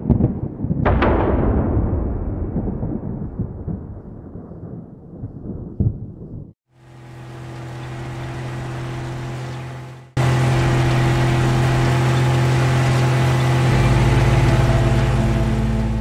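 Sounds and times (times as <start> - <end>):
deep low rumble: 0.0 - 6.6
car engine running: 6.8 - 16.0.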